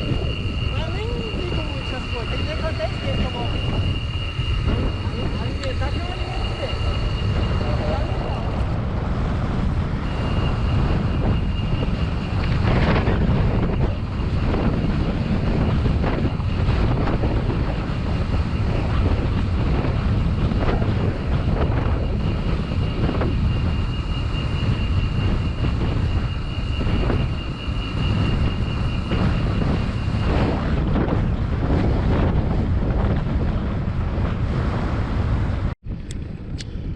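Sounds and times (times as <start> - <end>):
faint thin high whine: 0.0 - 8.8, 9.9 - 30.6
wind buffeting microphone: 0.0 - 36.9.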